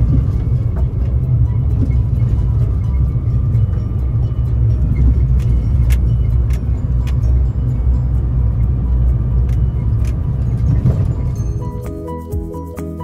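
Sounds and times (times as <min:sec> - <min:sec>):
sharp knocks and rattles: 0:00.0 - 0:07.4
vehicle rumbling on rough road: 0:00.0 - 0:13.0.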